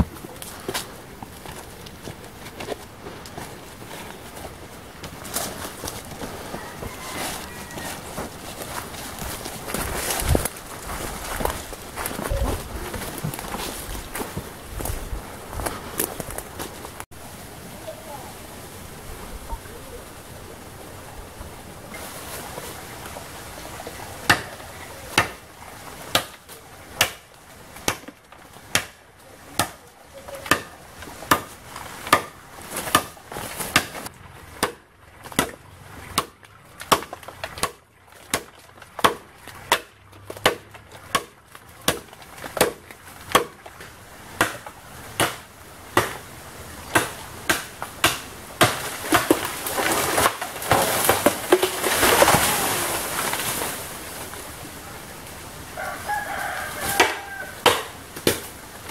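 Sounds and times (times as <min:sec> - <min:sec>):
rustling rush: 0:00.0 - 0:26.8, 0:43.9 - 0:56.9
blade chopping bamboo: 0:24.3 - 0:25.4, 0:26.1 - 0:29.0, 0:29.6 - 0:46.3, 0:46.9 - 0:52.6, 0:56.9 - 0:58.5.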